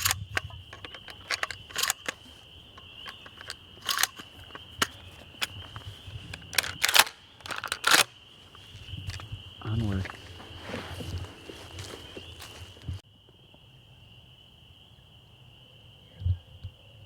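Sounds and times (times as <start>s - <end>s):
footsteps crunching through dry leaves: 8.2s - 13.0s.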